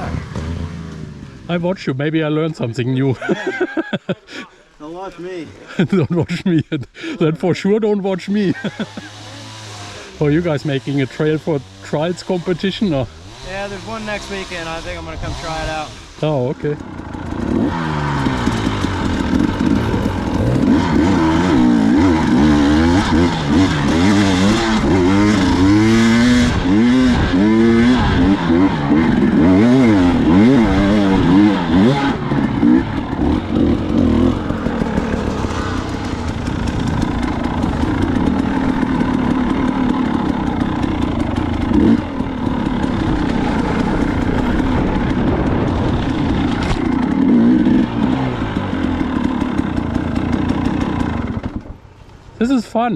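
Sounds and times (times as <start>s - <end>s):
dirt bike engine revving: 0.0s - 1.5s, 8.3s - 51.8s.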